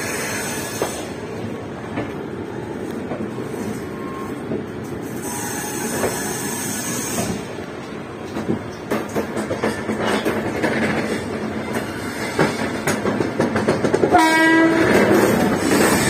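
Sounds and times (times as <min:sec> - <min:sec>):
train coaches rumbling over rails: 0:00.0 - 0:16.0.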